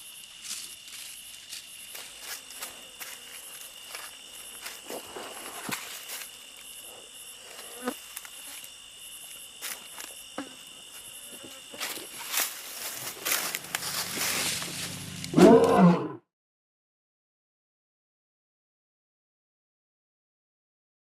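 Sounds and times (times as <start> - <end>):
insects trilling: 0.0 - 16.2.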